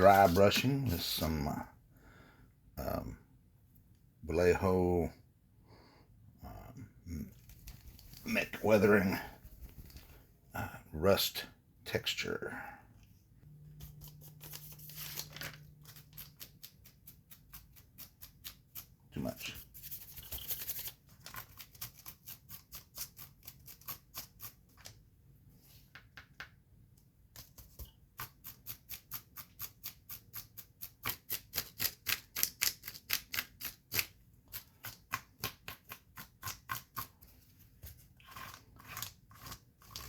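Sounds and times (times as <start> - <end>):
paintbrush scratching on plastic: 0.0 - 1.2, 35.8 - 40.0.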